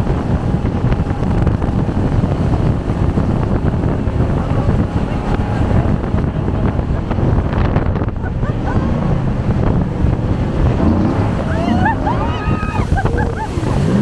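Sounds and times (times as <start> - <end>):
boat engine: 0.0 - 14.0
rushing water: 0.0 - 14.0
wind buffeting microphone: 0.0 - 14.0.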